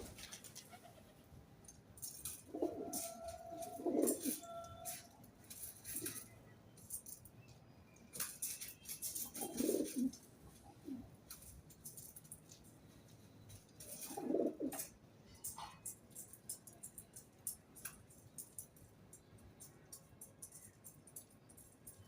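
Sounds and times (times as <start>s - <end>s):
scratchy clicks and rustles: 1.6s - 22.0s
pigeons cooing: 2.3s - 5.0s, 9.1s - 11.1s, 13.9s - 14.9s.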